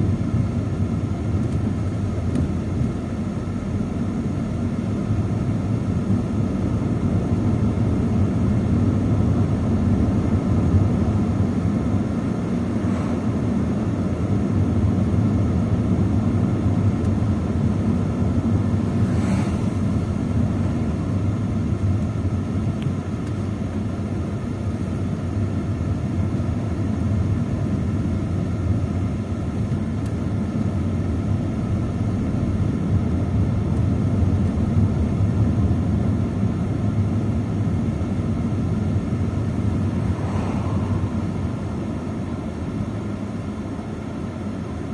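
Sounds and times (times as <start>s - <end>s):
low rumble with faint hum: 0.0s - 44.9s.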